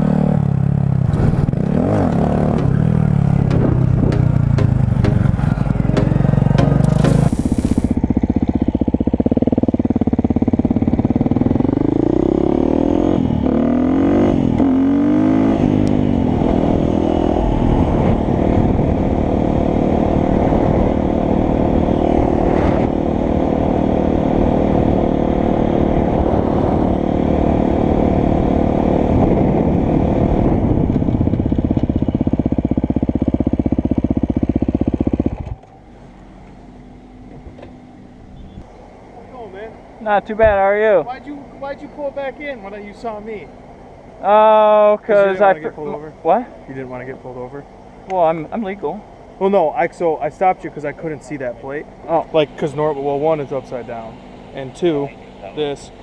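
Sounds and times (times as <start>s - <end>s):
motorcycle engine accelerating: 0.0s - 36.6s.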